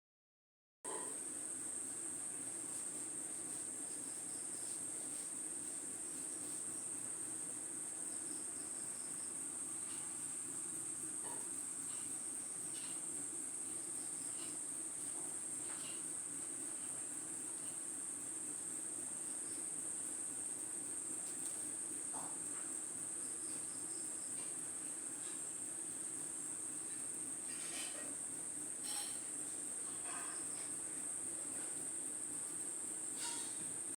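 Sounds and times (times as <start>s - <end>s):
insect chorus trilling: 1.1s - 33.9s.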